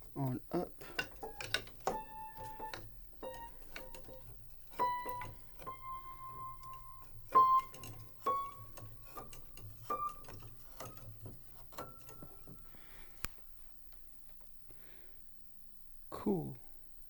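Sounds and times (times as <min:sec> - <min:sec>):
piano notes: 0:00.0 - 0:13.3
piano key clicks and knocks: 0:00.8 - 0:12.7.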